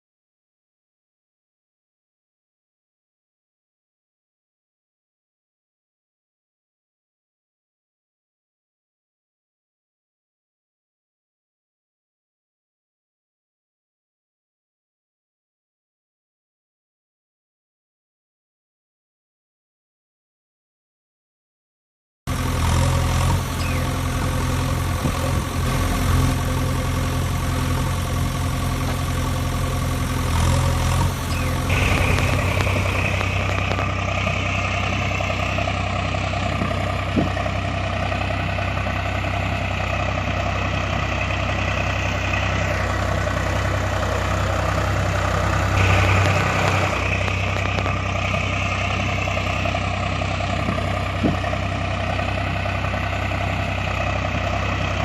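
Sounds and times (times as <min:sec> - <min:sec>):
tractor engine running: 0:22.3 - 0:55.0.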